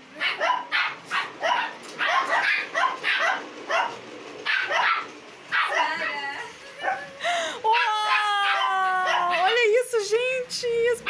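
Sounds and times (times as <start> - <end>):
dog barking: 0.2 - 6.1, 7.7 - 9.6.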